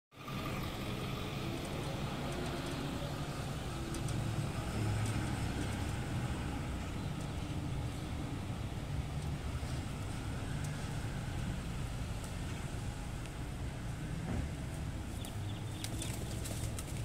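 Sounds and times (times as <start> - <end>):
car engine idling: 0.2 - 4.9.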